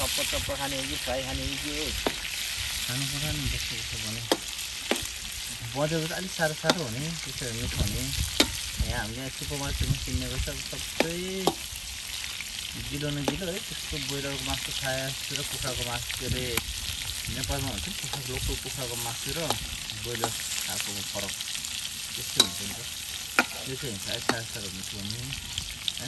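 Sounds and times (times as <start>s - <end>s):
background voices: 0.0s - 2.1s, 5.5s - 8.2s, 22.2s - 25.4s
food frying in oil: 0.0s - 26.0s.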